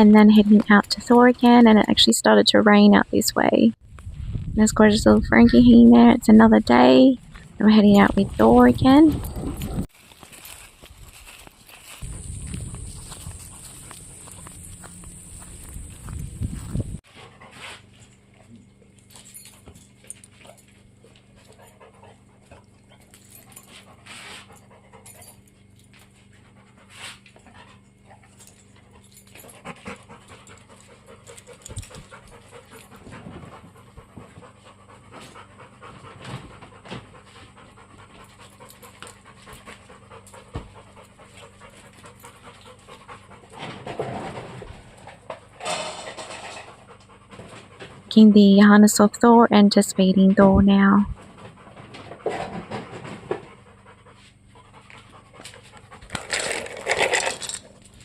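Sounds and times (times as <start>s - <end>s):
dog panting: 12.1s - 17.8s, 20.4s - 48.5s, 51.0s - 57.0s.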